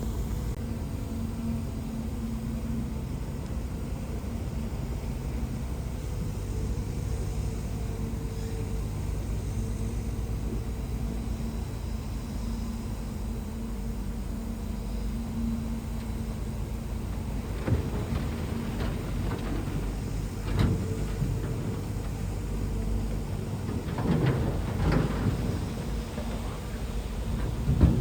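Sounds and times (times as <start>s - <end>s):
bulldozer diesel engine running: 0.0s - 28.0s
metal clanks and knocks: 17.1s - 28.0s.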